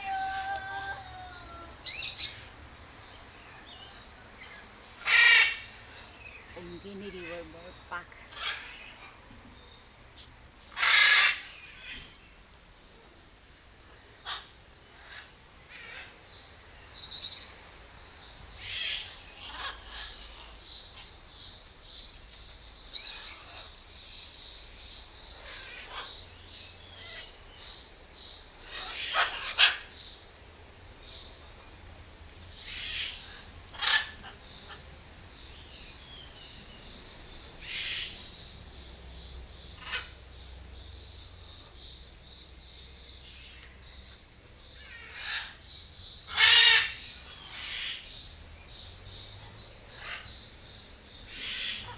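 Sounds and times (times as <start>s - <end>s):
bird harsh squawk: 0.0s - 2.5s, 10.7s - 12.1s, 28.7s - 30.0s, 46.3s - 48.0s
birds calling: 0.0s - 51.9s.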